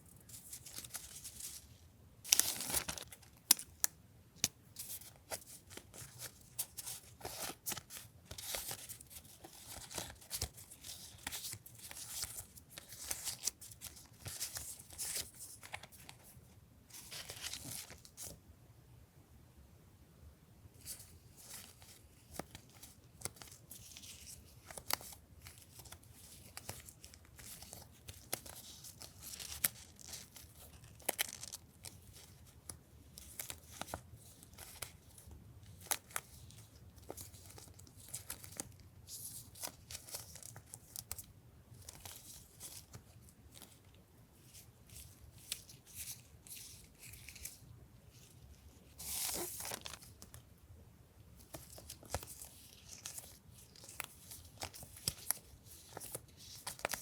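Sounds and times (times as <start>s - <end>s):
packaging rustling and tearing: 2.3s - 3.8s, 4.8s - 16.3s, 20.9s - 32.6s, 44.4s - 50.4s, 51.4s - 57.0s.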